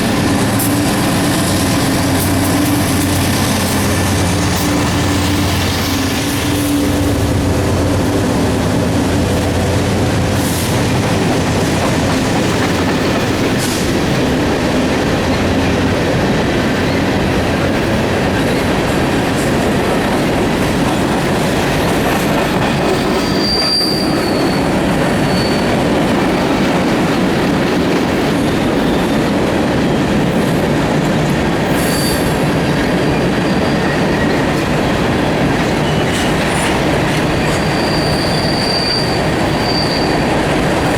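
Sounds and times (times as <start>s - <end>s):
diesel locomotive drone: 0.0s - 40.9s
train wheels rumbling on rails: 0.0s - 40.9s
high wheel squeals: 22.0s - 26.0s, 31.7s - 34.8s, 35.8s - 40.9s.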